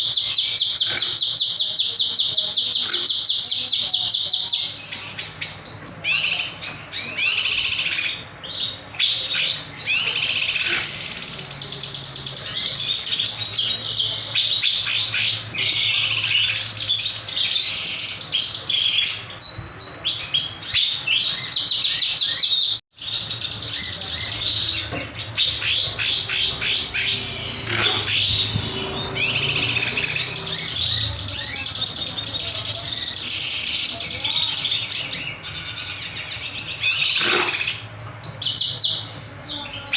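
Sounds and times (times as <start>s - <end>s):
songbird chirping and trilling: 0.0s - 39.9s.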